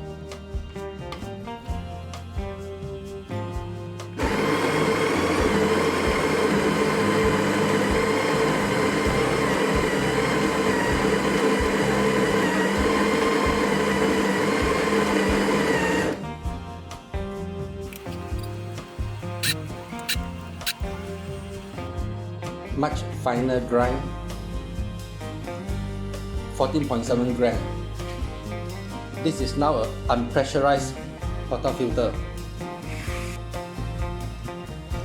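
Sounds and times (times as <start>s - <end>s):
background music: 0.0s - 35.0s
coffee grinder motor grinding: 4.2s - 16.2s, 17.9s - 21.9s.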